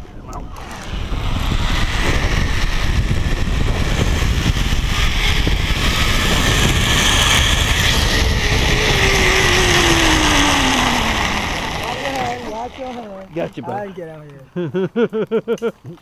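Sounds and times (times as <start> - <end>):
wind rushing past microphone: 0.0 - 12.8
zipline pulleys running on cable: 0.2 - 13.9.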